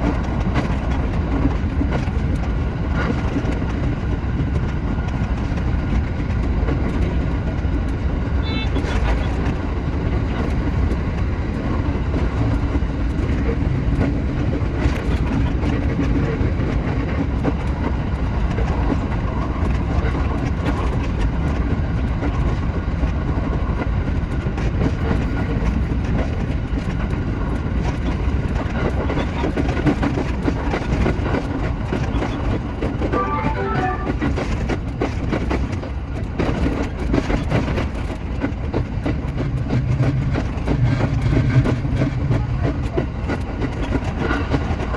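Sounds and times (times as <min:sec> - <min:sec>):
electric train rumble: 0:00.0 - 0:44.9
higher tones: 0:33.1 - 0:34.2.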